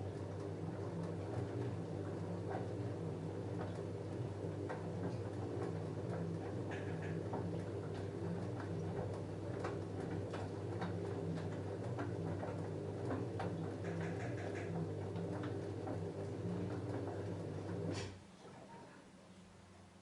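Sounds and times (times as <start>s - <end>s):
washing machine motor humming: 0.0s - 18.7s.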